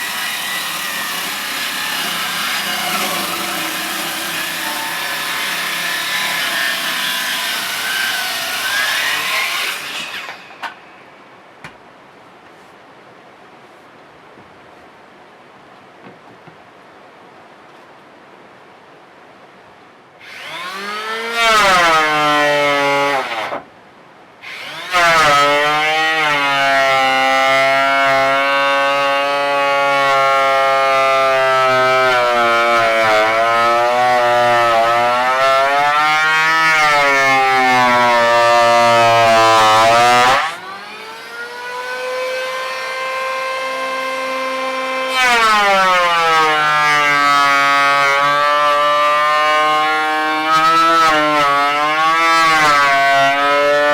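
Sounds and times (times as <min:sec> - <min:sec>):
angle grinder whining: 0:00.0 - 0:10.8, 0:20.2 - 0:21.4.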